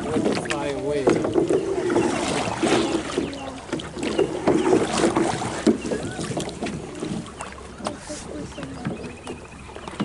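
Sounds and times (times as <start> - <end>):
paddle strokes splashing: 0.0 - 10.0
paddles knocking against hull: 0.0 - 10.0
voices chattering: 1.6 - 4.3, 5.8 - 9.6.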